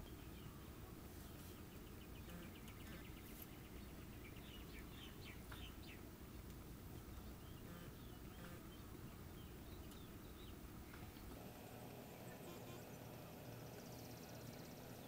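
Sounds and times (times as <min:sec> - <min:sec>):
low steady hum: 0:00.0 - 0:15.0
bird trill of ticks: 0:02.1 - 0:03.6, 0:09.8 - 0:10.1.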